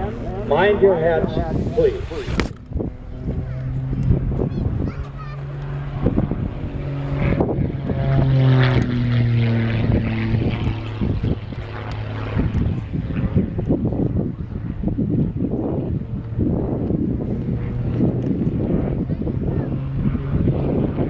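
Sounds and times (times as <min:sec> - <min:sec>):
propeller aircraft engine droning: 0:00.0 - 0:21.0.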